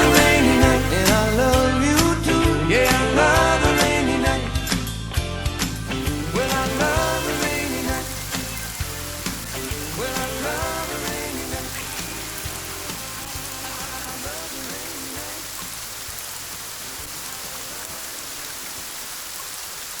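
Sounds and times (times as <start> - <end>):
rain falling: 0.0 - 1.7, 5.6 - 20.0
country song with drumbeat: 0.0 - 18.9.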